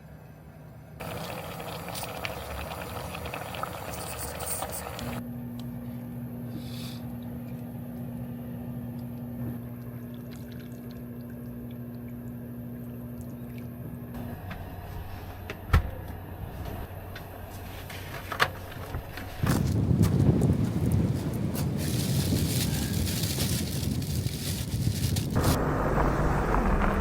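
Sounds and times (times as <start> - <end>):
low electric hum: 0.0 - 27.0
running water: 1.0 - 5.2.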